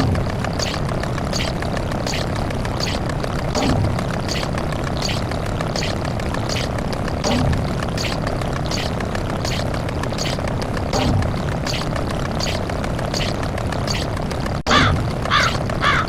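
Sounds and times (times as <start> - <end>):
noisy rumble: 0.0 - 16.0
deep thump: 3.6 - 4.4.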